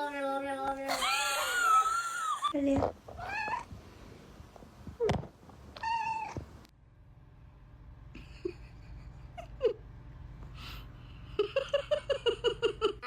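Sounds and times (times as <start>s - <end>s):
cat meowing: 3.2s - 3.7s, 5.8s - 6.4s
steady low hum: 6.4s - 13.0s.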